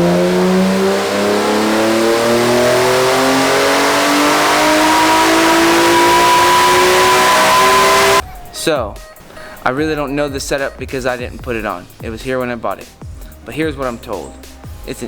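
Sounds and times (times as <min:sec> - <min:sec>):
car engine revving under full throttle: 0:00.0 - 0:08.2.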